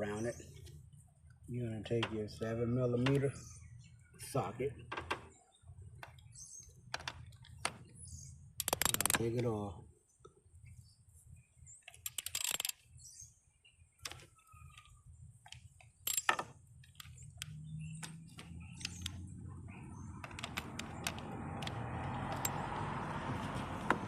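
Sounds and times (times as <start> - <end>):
socket ratchet clicking: 8.6 - 9.2, 11.9 - 12.8, 20.2 - 22.6.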